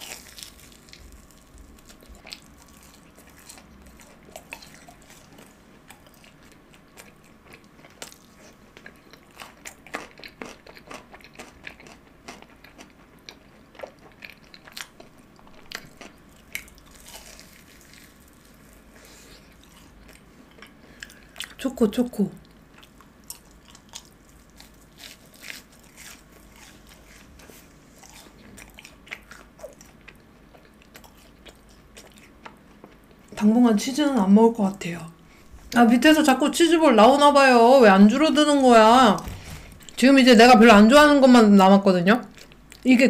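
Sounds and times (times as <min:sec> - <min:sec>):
soft crunching while chewing: 0:00.0 - 0:21.6, 0:22.4 - 0:33.4, 0:42.2 - 0:42.9.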